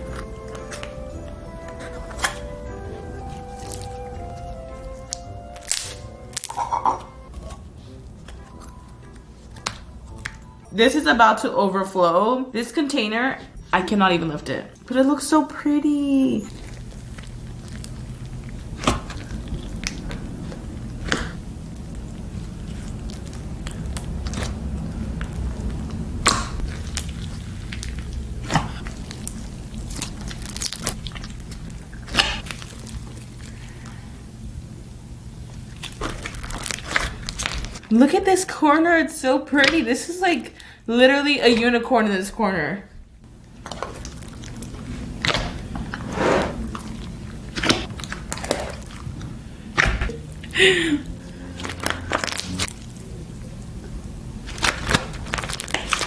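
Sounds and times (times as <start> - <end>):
slime squishing and crackling: 3.2 - 7.6, 15.9 - 34.1, 35.6 - 38.2, 43.5 - 53.8, 54.4 - 56.0
sharp slime pops and clicks: 5.2 - 6.6.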